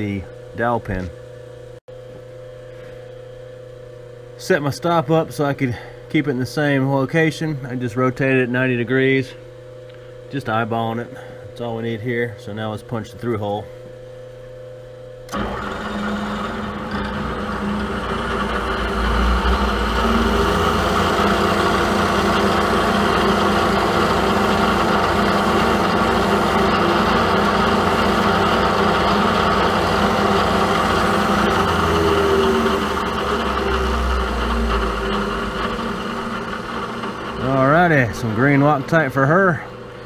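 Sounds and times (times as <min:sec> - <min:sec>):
milling machine running: 0:15.3 - 0:40.0.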